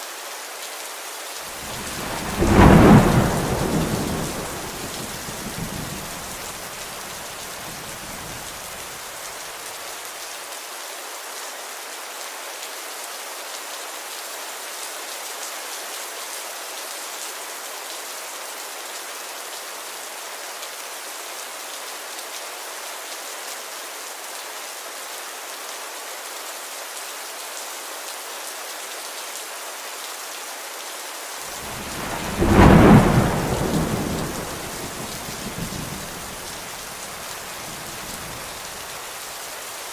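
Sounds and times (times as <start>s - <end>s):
heavy rain hissing: 1.4s - 10.0s, 31.4s - 39.9s
loud thunder roll: 1.6s - 6.9s, 31.5s - 38.8s
thunder rumbling: 1.6s - 8.8s, 31.5s - 39.0s.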